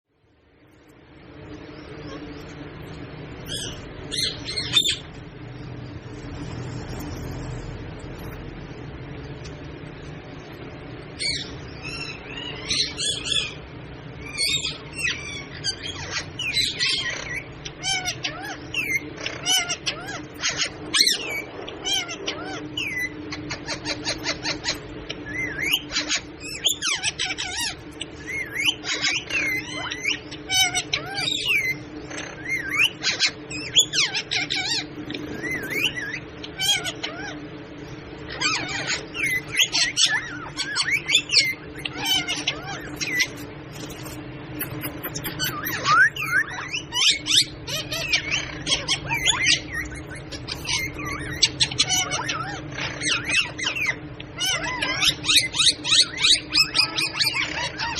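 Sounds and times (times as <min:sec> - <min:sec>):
parrot rattling trill: 0:38.2 - 0:57.9
parrot squawks and whistles: 0:38.3 - 0:57.9.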